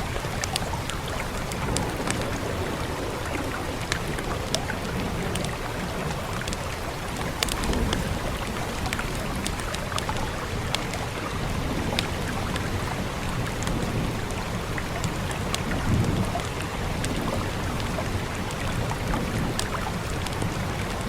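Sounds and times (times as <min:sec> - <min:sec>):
wood fire crackling: 0:00.0 - 0:14.0
rain hiss: 0:00.0 - 0:21.0.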